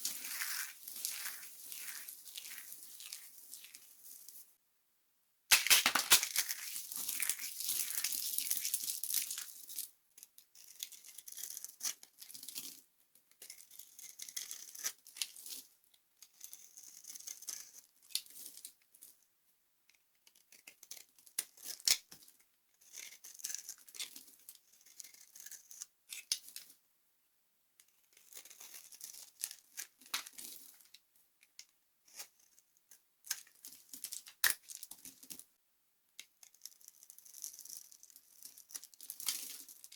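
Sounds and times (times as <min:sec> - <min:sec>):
dry soap crunching: 0:00.0 - 0:04.4, 0:05.5 - 0:09.9.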